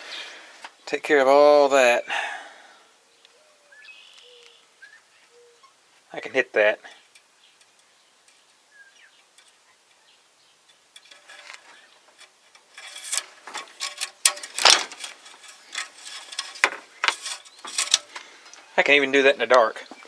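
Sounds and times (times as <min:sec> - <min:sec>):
hand tools clicking on metal: 0:10.7 - 0:18.6.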